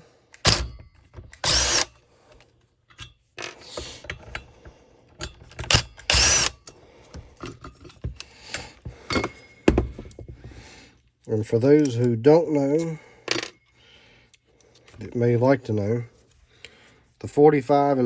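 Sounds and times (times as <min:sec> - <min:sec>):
rasping bursts: 0:01.4 - 0:01.9, 0:06.1 - 0:06.6
tools clicking and knocking on bench: 0:02.9 - 0:10.6, 0:12.8 - 0:13.7.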